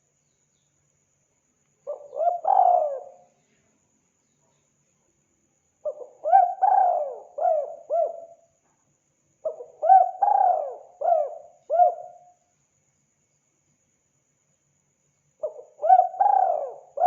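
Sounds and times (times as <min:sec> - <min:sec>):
dove cooing: 0:01.9 - 0:03.3, 0:05.8 - 0:08.4, 0:09.4 - 0:12.2, 0:15.4 - 0:17.0.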